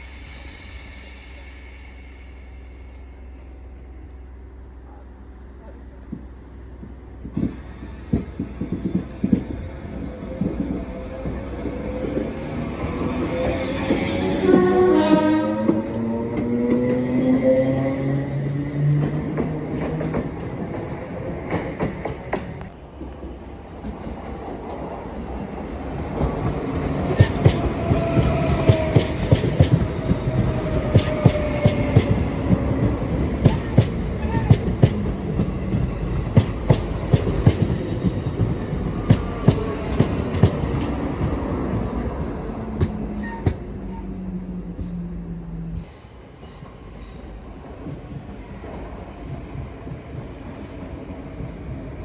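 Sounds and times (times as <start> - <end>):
low train rumble: 0.0 - 52.0
train wheels clacking over rail joints: 18.5 - 22.8, 26.0 - 43.9
train motor whine: 26.2 - 45.9
high wheel squeal: 27.1 - 44.6.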